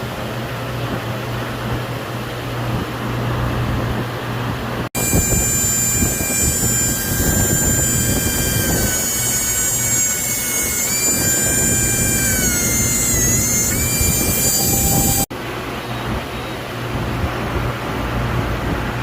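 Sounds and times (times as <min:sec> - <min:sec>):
mechanical rumble: 0:05.0 - 0:15.3
milling machine whine: 0:05.0 - 0:15.3.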